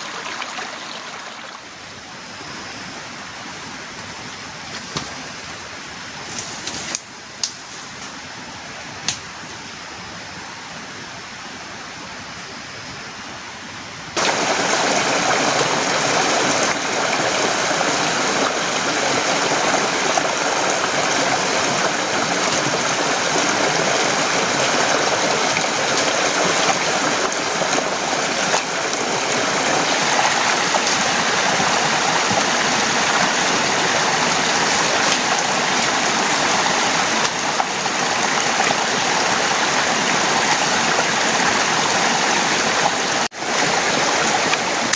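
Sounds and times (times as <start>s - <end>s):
heavy downpour: 14.1s - 44.9s
rain falling: 14.2s - 44.9s.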